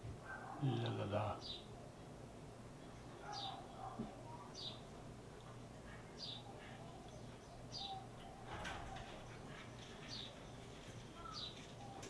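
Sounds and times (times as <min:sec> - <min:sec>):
bird chirping faintly: 0:02.8 - 0:04.9, 0:05.8 - 0:12.0.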